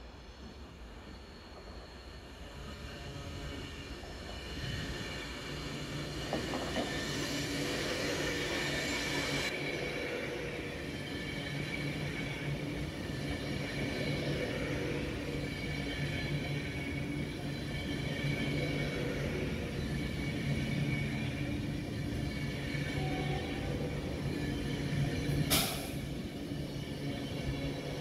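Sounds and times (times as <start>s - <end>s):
train engine humming: 0.0s - 28.0s
hiss: 25.4s - 26.2s.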